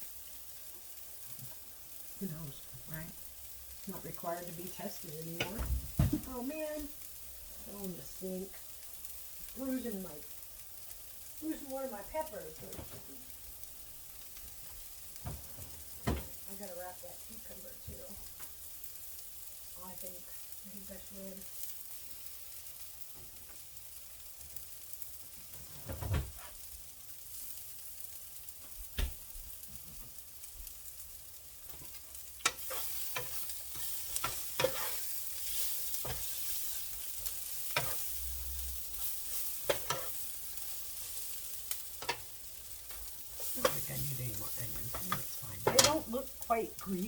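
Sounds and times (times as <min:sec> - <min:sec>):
vegetables sizzling in a frying pan: 0:00.0 - 0:47.0
utensil knocking and scraping pan: 0:31.7 - 0:38.1, 0:39.0 - 0:40.2, 0:42.0 - 0:42.2, 0:43.4 - 0:46.1.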